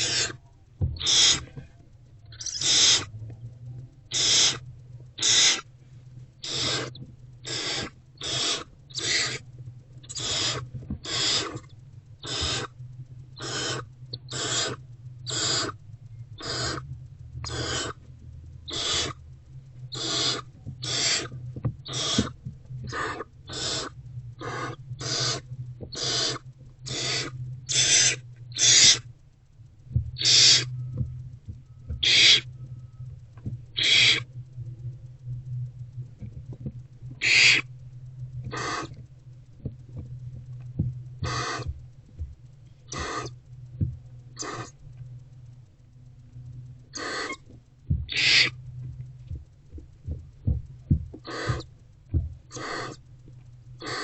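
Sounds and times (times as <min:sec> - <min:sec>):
owlets rasping hiss calls: 0:00.0 - 0:00.4, 0:01.0 - 0:01.6, 0:02.3 - 0:03.1, 0:04.1 - 0:04.6, 0:05.2 - 0:05.7, 0:06.4 - 0:12.8, 0:13.4 - 0:15.8, 0:16.4 - 0:18.0, 0:18.6 - 0:19.3, 0:19.9 - 0:29.1, 0:30.2 - 0:30.8, 0:32.0 - 0:32.5, 0:33.8 - 0:34.3, 0:37.2 - 0:37.7, 0:38.4 - 0:39.0, 0:41.2 - 0:41.8, 0:42.9 - 0:43.4, 0:44.3 - 0:44.8, 0:46.9 - 0:47.4, 0:48.0 - 0:48.6, 0:51.2 - 0:51.7, 0:52.5 - 0:53.1, 0:53.8 - 0:54.0
low hum: 0:00.0 - 0:54.0.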